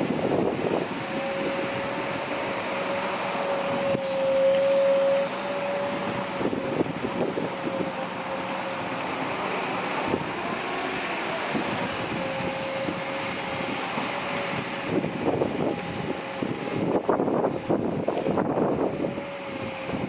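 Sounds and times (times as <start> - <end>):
heavy diesel machinery whining: 0.0 - 20.0.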